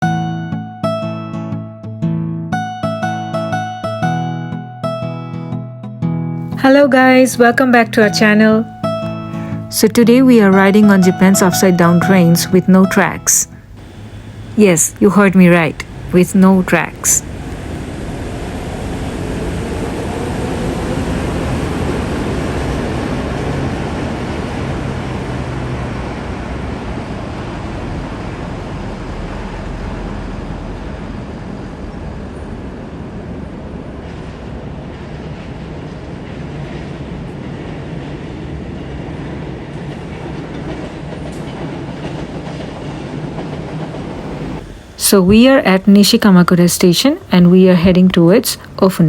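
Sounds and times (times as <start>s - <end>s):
train rumbling and rushing: 13.6s - 49.0s.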